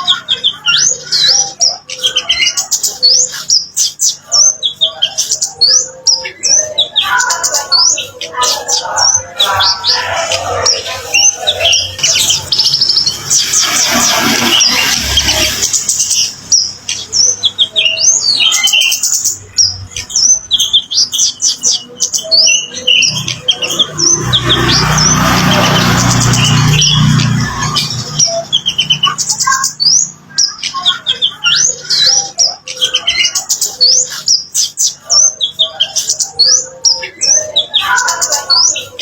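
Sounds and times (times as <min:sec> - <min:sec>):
birds chirping: 0:00.0 - 0:39.0
steady rushing noise: 0:08.4 - 0:16.9.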